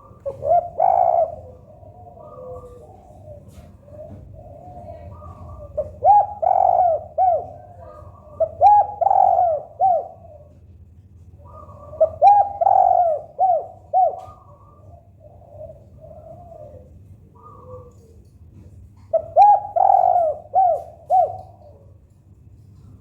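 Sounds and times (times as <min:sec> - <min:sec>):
softer cooing from another dove: 0:00.0 - 0:22.1
dove cooing: 0:00.0 - 0:23.0.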